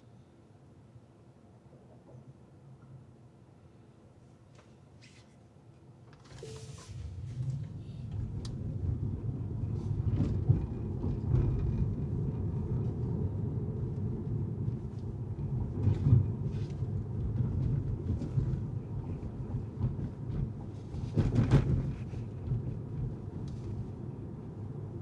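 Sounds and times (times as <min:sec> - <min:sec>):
car road and tyre rumble: 0:06.2 - 0:25.0.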